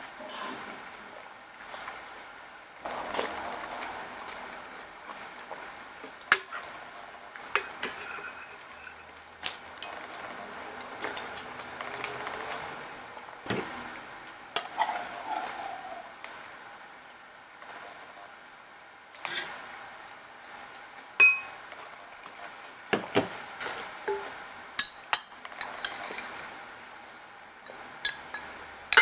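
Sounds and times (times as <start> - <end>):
spoon clinking against a bowl: 21.2 - 21.6.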